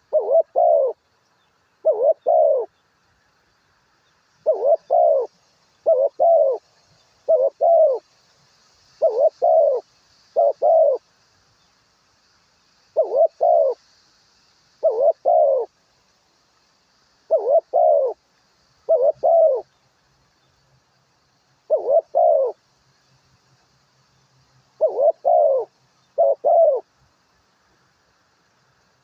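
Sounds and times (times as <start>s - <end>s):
bird hooting call: 0.0s - 1.0s, 1.8s - 2.8s, 4.4s - 6.6s, 7.2s - 8.0s, 9.0s - 11.0s, 12.9s - 13.8s, 14.8s - 15.7s, 17.3s - 18.2s, 18.8s - 19.7s, 21.6s - 22.6s, 24.8s - 26.9s.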